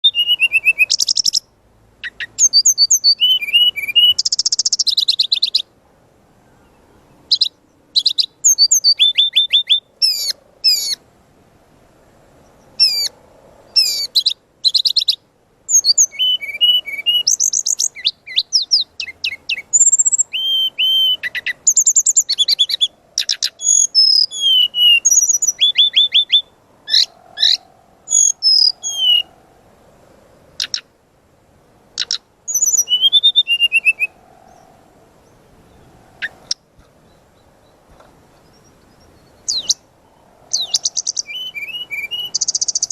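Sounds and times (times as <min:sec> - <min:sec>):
bird singing whistled phrases: 0:00.0 - 0:05.7, 0:07.3 - 0:11.0, 0:12.8 - 0:13.1, 0:13.8 - 0:29.3, 0:32.0 - 0:34.2, 0:38.5 - 0:39.8, 0:40.5 - 0:42.9.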